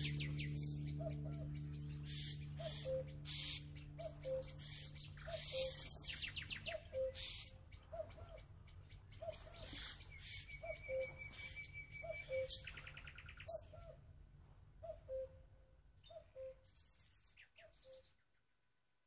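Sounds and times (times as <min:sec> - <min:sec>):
birds trilling: 0:00.0 - 0:14.0
low bird call: 0:00.0 - 0:14.1, 0:14.8 - 0:18.2.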